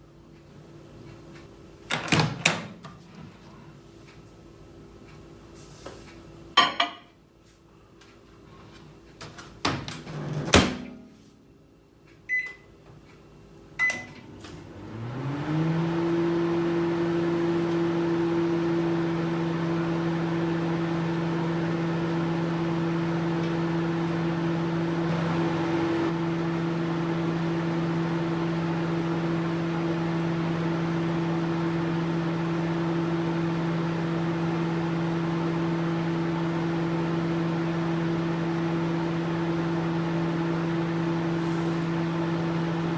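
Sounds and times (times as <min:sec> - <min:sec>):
microwave oven humming: 0:07.8 - 0:42.9
keypad beeps: 0:12.3 - 0:12.6, 0:13.8 - 0:14.2.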